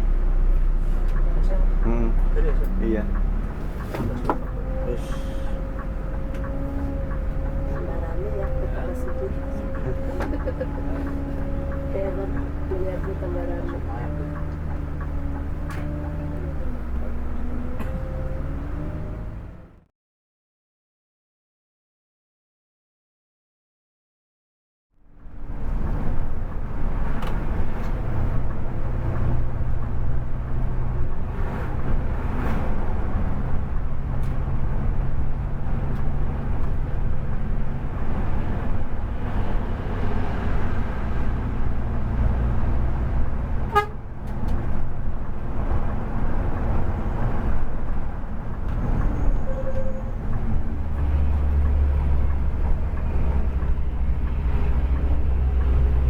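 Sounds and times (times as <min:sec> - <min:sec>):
bus engine rumble: 0:00.0 - 0:19.9, 0:25.0 - 0:56.0
road noise: 0:00.0 - 0:19.9, 0:25.0 - 0:56.0.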